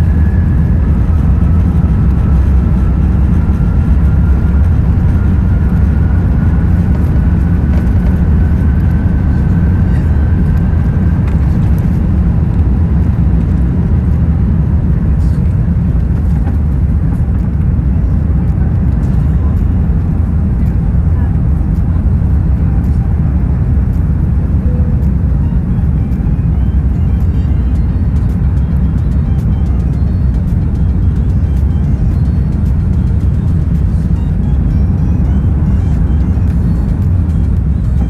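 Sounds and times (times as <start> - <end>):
faint rising whine: 0.0 - 17.8
aircraft cabin low rumble: 0.0 - 38.0.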